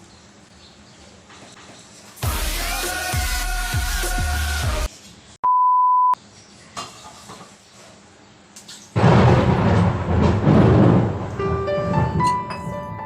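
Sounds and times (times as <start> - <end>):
electronic beep: 5.5 - 6.2.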